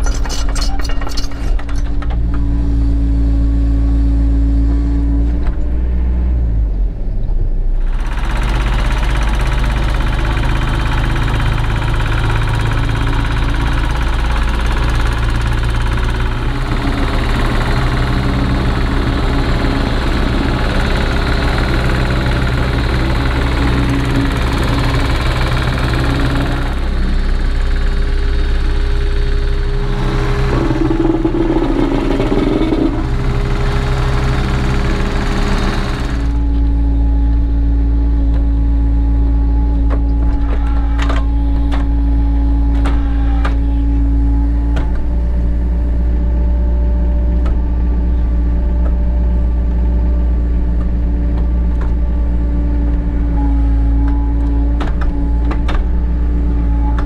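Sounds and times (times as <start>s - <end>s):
hydraulics working: 0.0s - 3.6s, 7.8s - 57.0s
excavator diesel engine: 0.0s - 57.0s.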